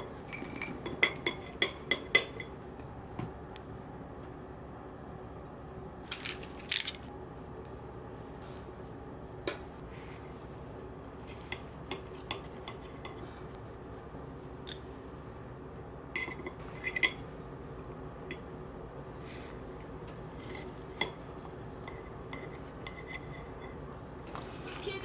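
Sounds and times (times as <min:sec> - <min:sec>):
steady low hum: 0:00.0 - 0:25.0
dishes and utensils clinking: 0:00.2 - 0:02.6.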